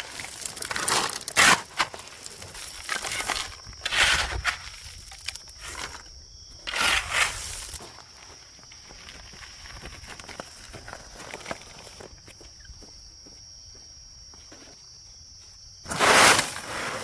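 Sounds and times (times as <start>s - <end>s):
crunching and crinkling: 0.0s - 12.5s.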